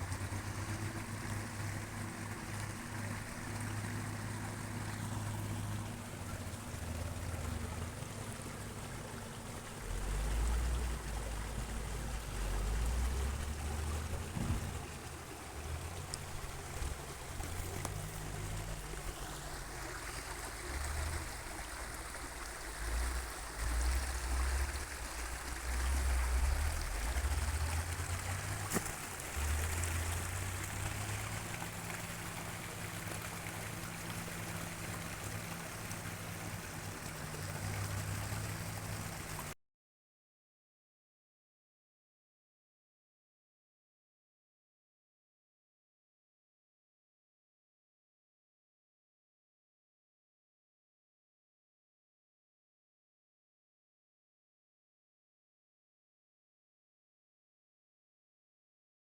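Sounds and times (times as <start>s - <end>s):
low rumbles: 0.0s - 39.4s
running water rushing: 0.0s - 39.6s.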